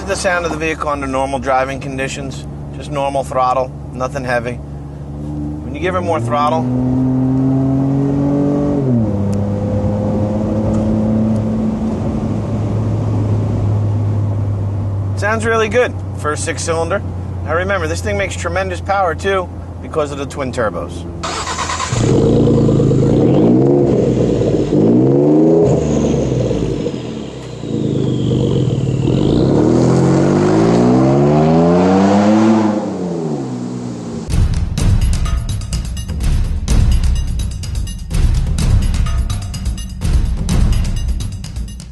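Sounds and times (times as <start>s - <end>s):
truck engine accelerating: 5.0s - 18.6s, 20.8s - 34.4s
pickup truck engine under throttle: 21.2s - 33.8s
music: 34.3s - 41.9s.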